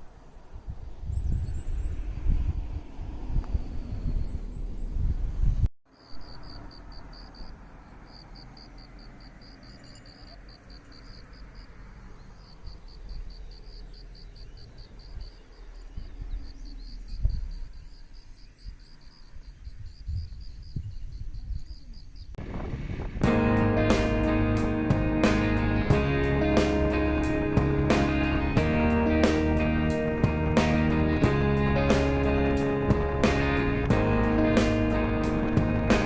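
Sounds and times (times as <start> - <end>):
insect chirping: 5.9 - 22.4.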